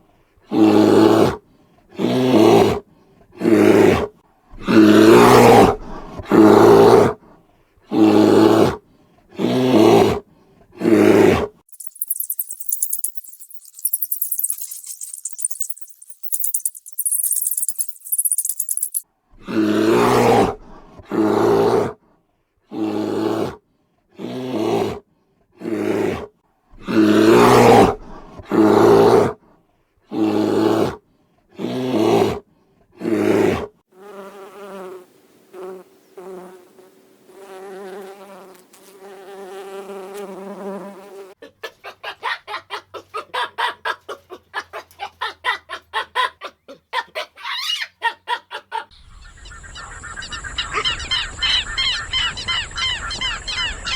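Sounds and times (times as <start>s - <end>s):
short pulsed animal calls: 11.7s - 19.0s
loud animal calls: 48.9s - 53.9s.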